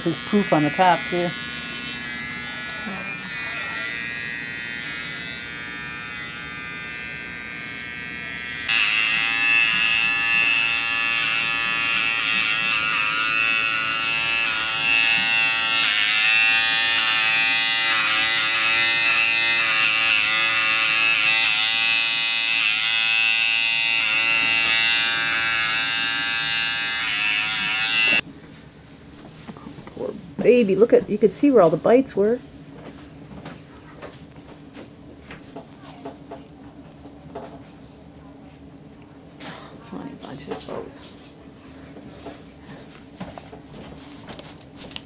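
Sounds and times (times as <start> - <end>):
electric clippers buzzing: 0.0 - 28.2.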